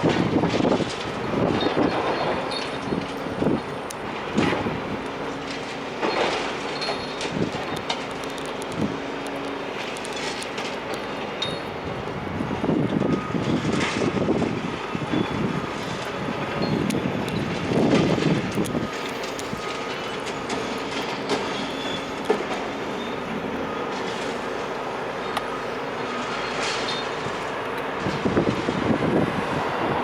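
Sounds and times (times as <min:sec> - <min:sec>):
metal and debris clattering: 0:00.0 - 0:04.7, 0:05.4 - 0:08.1
demolition machine engine running: 0:00.0 - 0:30.0.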